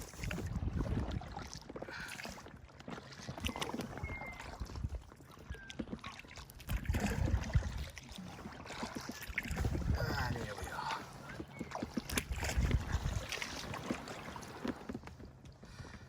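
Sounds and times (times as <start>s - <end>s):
paddle strokes splashing water: 0.0s - 16.0s.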